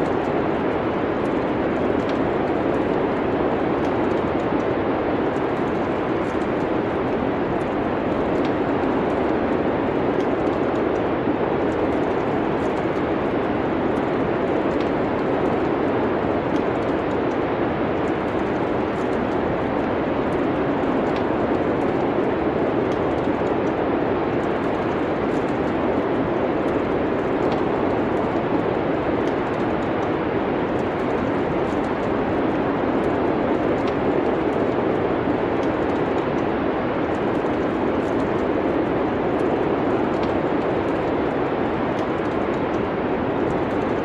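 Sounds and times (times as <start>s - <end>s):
wind and snowstorm: 0.0s - 44.0s
wood fire crackling: 0.0s - 44.0s.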